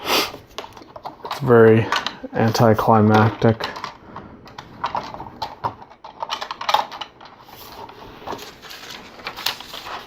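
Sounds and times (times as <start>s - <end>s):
plastic toy bricks clicking: 0.6s - 7.5s.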